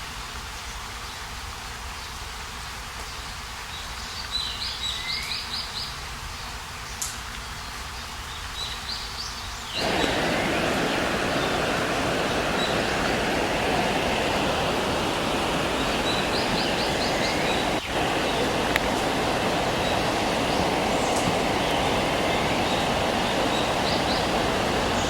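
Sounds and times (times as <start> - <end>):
bird chirps: 9.7 - 25.0
stream rushing over rocks: 9.8 - 25.0.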